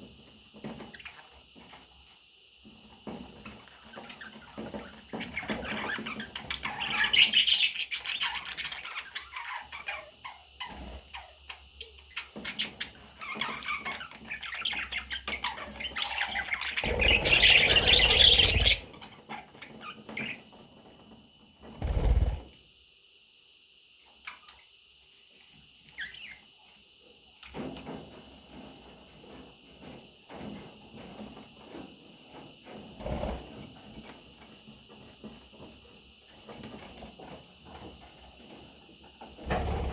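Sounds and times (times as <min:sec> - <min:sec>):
baby budgerigars squawking: 0:12.6 - 0:18.9.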